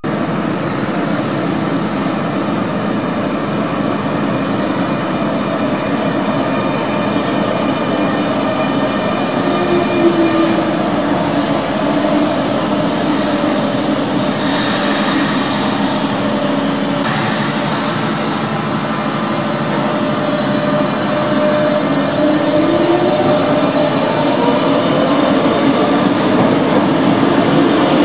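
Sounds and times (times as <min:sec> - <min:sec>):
train wheels and motors rumbling: 0:00.0 - 0:28.0
brief squeal: 0:12.2 - 0:28.0.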